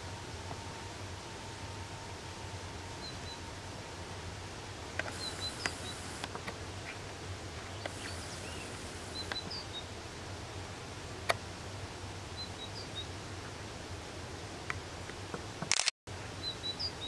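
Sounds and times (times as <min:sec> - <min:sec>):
outdoor background noise: 0:00.0 - 0:17.0
sharp click: 0:15.7 - 0:15.9.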